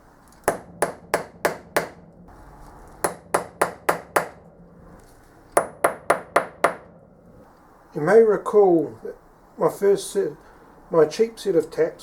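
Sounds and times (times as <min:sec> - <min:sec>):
hammer knocking on metal: 0:00.5 - 0:02.1, 0:03.0 - 0:04.4, 0:05.6 - 0:07.0.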